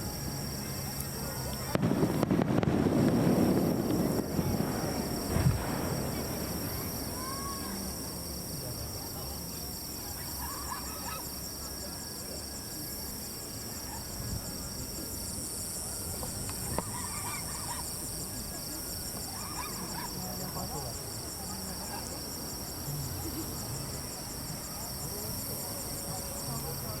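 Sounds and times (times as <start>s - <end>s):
faint distant voices: 0.0s - 27.0s
insects trilling: 0.0s - 27.0s
firework boom: 1.6s - 8.5s.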